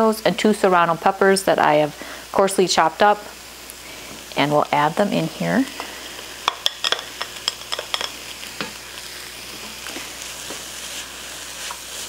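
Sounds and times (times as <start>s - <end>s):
pan sizzling: 0.0s - 12.0s
spatula tapping and scraping: 6.4s - 8.8s.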